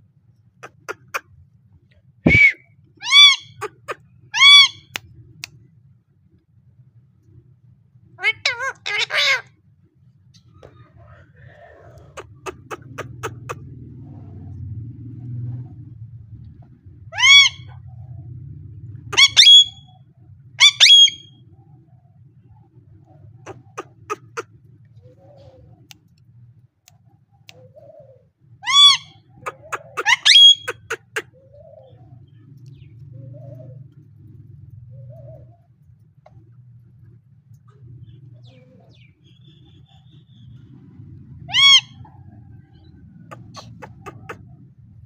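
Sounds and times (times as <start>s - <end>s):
parrot calling loudly: 2.3s - 5.0s, 8.2s - 9.5s, 17.2s - 17.8s, 19.1s - 19.9s, 20.6s - 21.4s, 28.6s - 31.4s, 41.4s - 42.2s.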